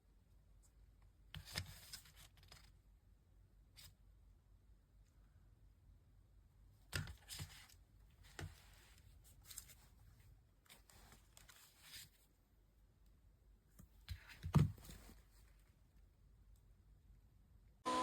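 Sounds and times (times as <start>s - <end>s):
rustling: 7.1s - 12.4s, 13.8s - 16.1s.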